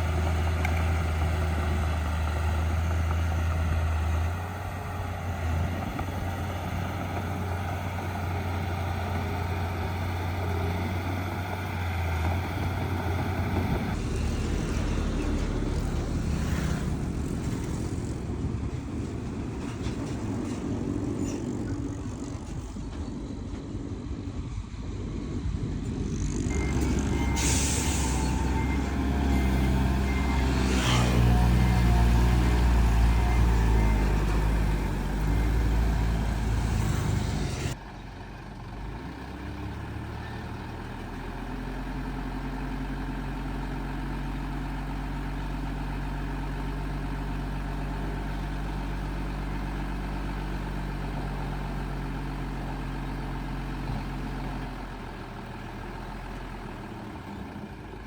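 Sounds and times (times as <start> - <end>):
diesel truck engine running hard: 0.0 - 58.0
diesel engine idling: 24.8 - 30.7, 31.4 - 58.0
reversing beeper: 26.1 - 37.8.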